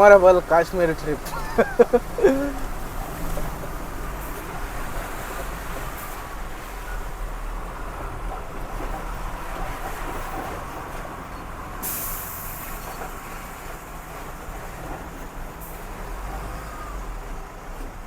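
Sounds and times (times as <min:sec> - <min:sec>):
truck engine running low: 0:00.0 - 0:18.0
air brakes hissing: 0:11.8 - 0:13.3.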